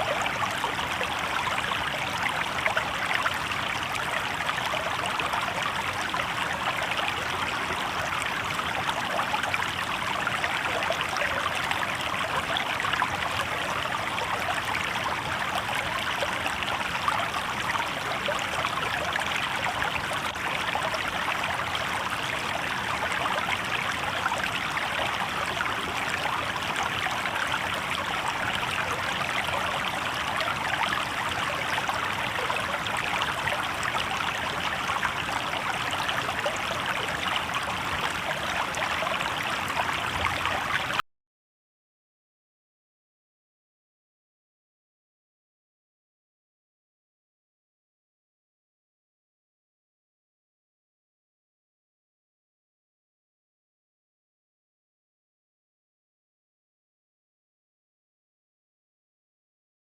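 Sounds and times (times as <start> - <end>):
river water babbling over rocks: 0.0 - 41.0.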